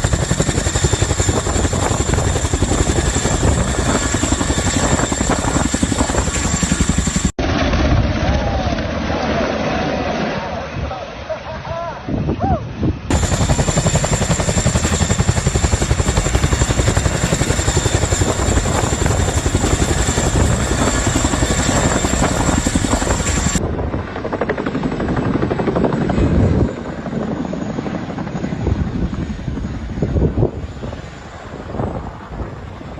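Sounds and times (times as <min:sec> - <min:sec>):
helicopter rotor chopping: 0:00.0 - 0:11.2, 0:13.0 - 0:32.8.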